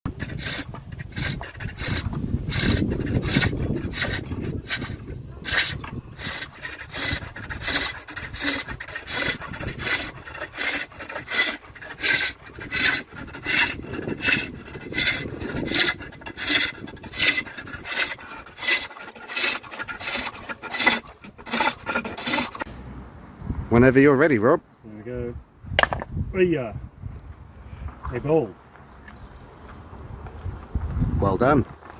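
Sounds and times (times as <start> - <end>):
gouge scraping wood on lathe: 0.0 - 22.7.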